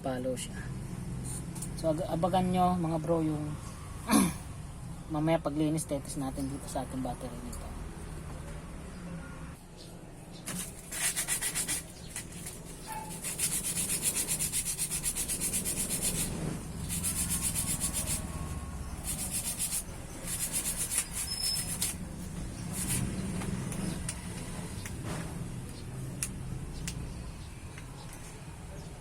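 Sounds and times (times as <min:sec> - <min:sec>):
sanding on metal: 0:10.6 - 0:23.3.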